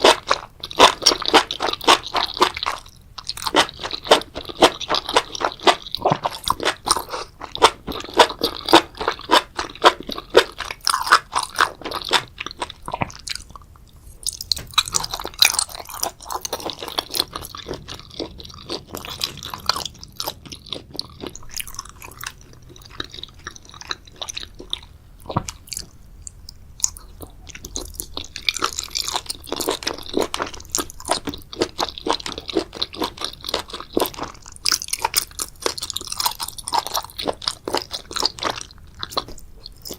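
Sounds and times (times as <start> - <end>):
wet chewing: 0.0 - 39.9.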